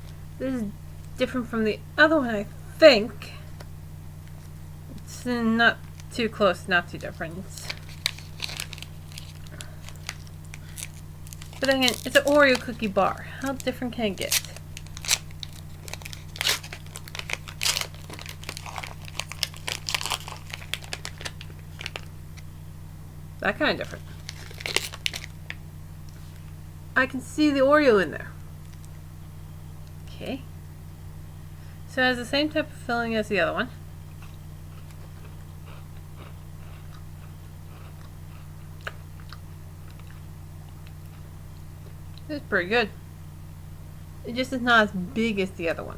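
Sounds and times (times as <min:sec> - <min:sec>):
steady low hum: 0:00.0 - 0:45.9
wrapper crinkling and tearing: 0:07.5 - 0:22.1, 0:23.9 - 0:25.6
person chewing: 0:34.2 - 0:42.2.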